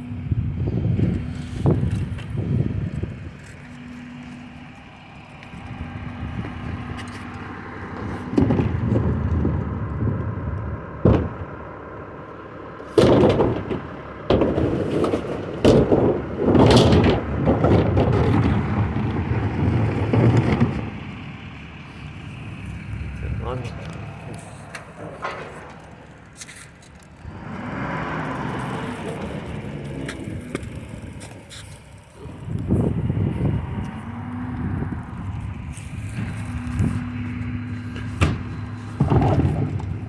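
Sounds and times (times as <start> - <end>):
recycling truck running: 0.0 - 40.0
loud bangs thumps and clatter: 7.9 - 10.1, 11.0 - 11.7, 12.9 - 21.2, 34.7 - 40.0.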